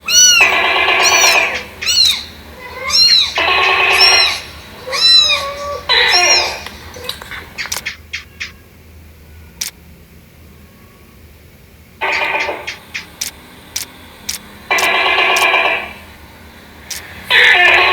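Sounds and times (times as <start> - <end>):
meow-like calls: 0.0 - 9.8
sharp clicks: 6.6 - 8.0, 12.3 - 15.6, 16.9 - 17.1.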